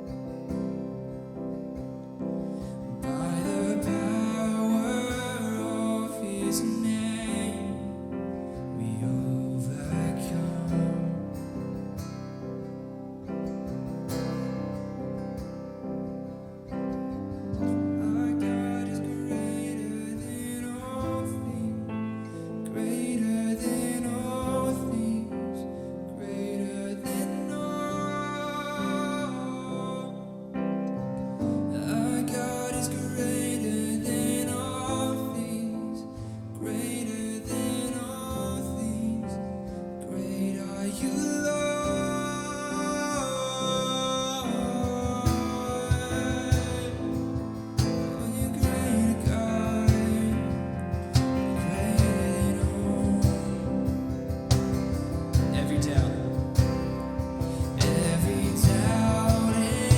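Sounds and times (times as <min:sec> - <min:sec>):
sustained keyboard chords: 0:00.0 - 0:27.9, 0:30.6 - 0:59.9
person singing: 0:02.6 - 0:11.9, 0:17.4 - 0:59.9
steady low beat: 0:44.8 - 0:59.9.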